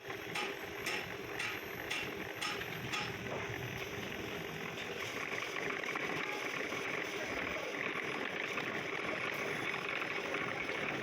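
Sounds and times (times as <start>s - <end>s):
machine tool humming: 0.0s - 11.0s
sharp mechanical ticks: 0.1s - 3.3s.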